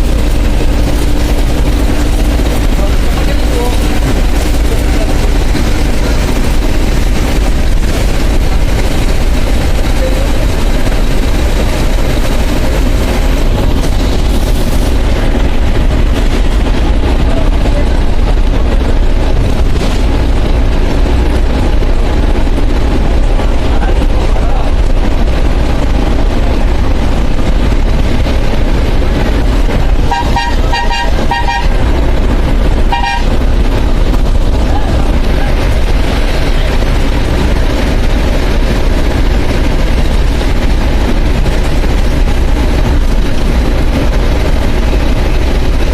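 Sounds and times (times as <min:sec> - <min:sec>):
bus engine and road noise: 0:00.0 - 0:45.9
vehicle horn short toots: 0:30.1 - 0:31.8, 0:32.9 - 0:33.4.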